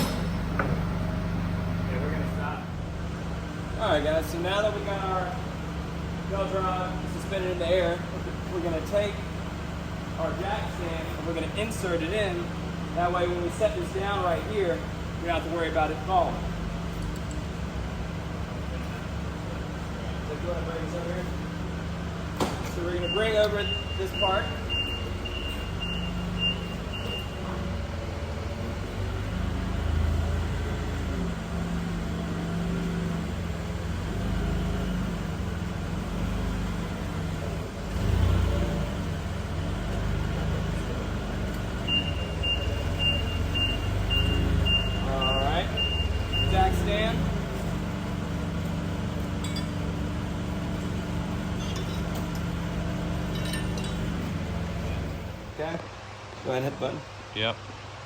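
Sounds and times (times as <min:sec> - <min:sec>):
forklift engine running: 0:00.0 - 0:55.7
reversing beeper beeps: 0:22.8 - 0:27.6, 0:41.8 - 0:47.3
light metallic clinks: 0:49.2 - 0:50.1, 0:51.4 - 0:55.1.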